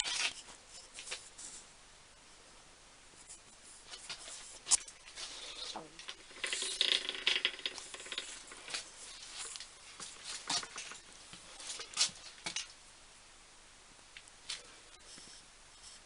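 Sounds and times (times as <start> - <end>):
rustles: 3.2 - 12.8.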